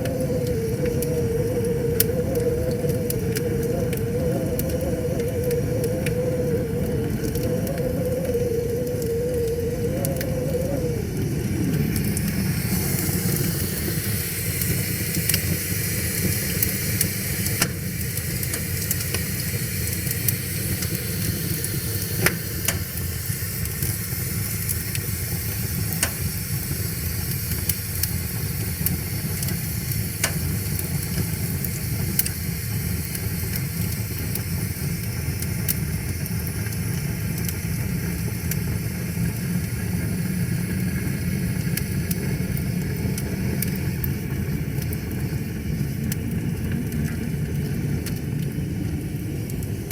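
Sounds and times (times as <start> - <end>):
wavering hum sliding down: 0.0 - 15.5
campfire crackling: 0.0 - 49.9.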